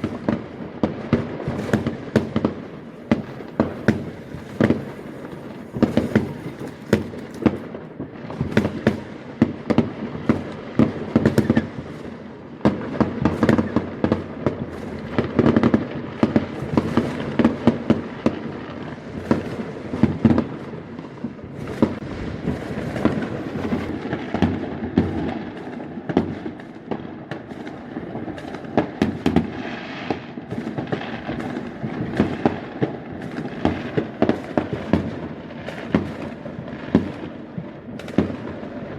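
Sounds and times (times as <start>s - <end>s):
fireworks bangs and crackles: 0.0s - 38.9s.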